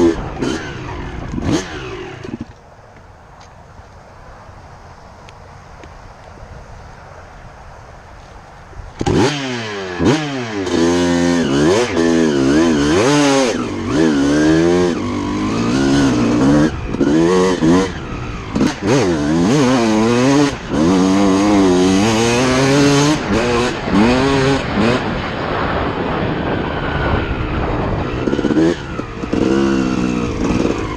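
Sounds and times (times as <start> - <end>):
two-stroke motorcycle engine revving: 0.0 - 2.5, 9.0 - 30.9
faint windy hiss: 0.0 - 30.9.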